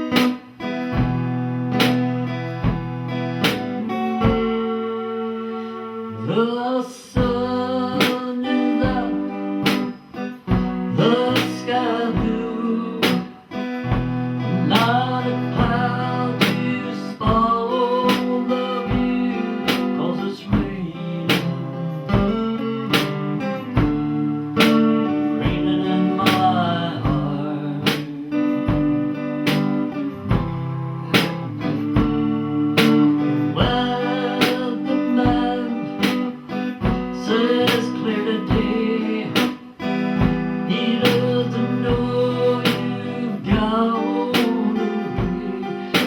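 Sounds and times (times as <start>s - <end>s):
guitar music: 0.0s - 46.0s.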